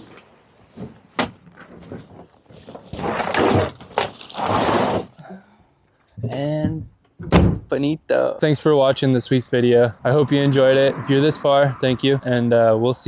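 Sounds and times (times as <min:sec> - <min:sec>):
rustling and scraping: 0:00.0 - 0:05.1.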